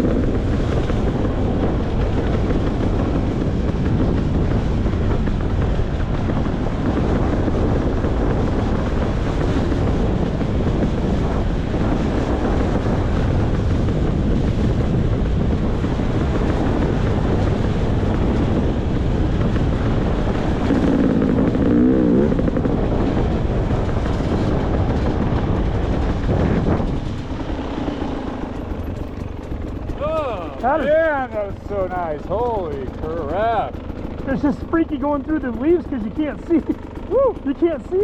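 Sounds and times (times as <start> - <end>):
steady rushing noise: 0.0 - 38.0
dirt bike engine revving: 19.7 - 25.2.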